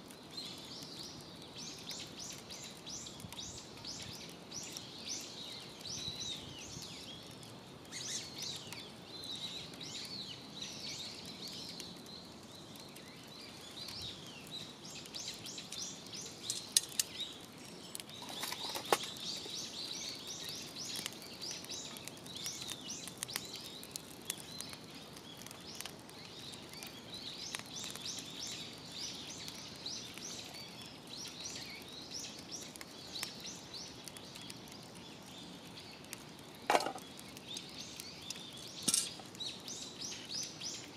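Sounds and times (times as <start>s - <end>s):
small birds chirping: 0.0s - 40.9s
sharp cracks: 16.4s - 17.3s, 36.1s - 39.4s.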